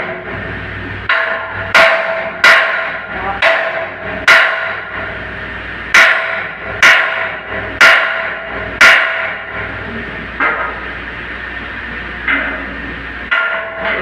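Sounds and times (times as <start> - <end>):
hammer blows ringing: 1.1 - 5.2, 5.9 - 9.6, 13.3 - 14.0.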